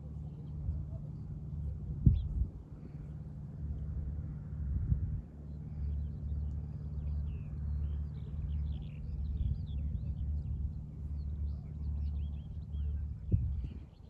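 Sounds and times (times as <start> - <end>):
loud low rumble: 3.9 - 13.9.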